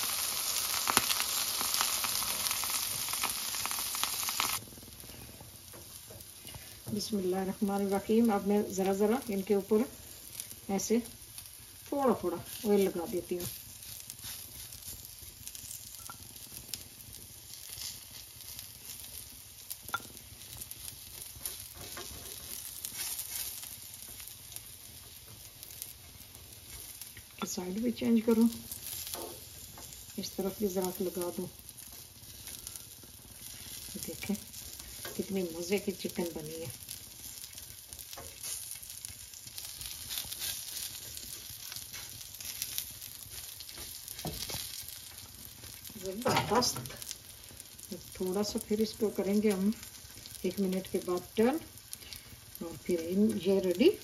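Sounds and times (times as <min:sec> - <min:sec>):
meat sizzling in hot oil: 0:00.0 - 0:54.0.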